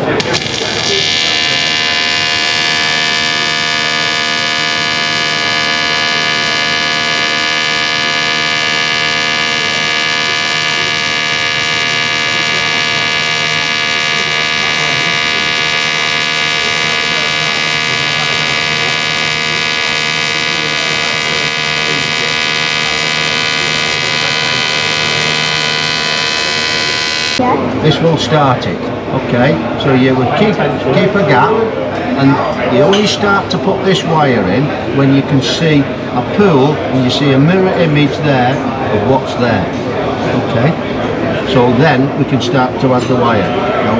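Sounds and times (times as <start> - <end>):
welding arc buzzing: 0.0 - 27.4.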